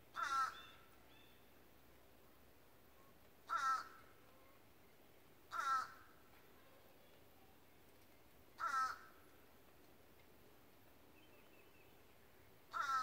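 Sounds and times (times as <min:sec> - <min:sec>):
bird harsh calls: 0:00.2 - 0:01.2, 0:12.7 - 0:13.0.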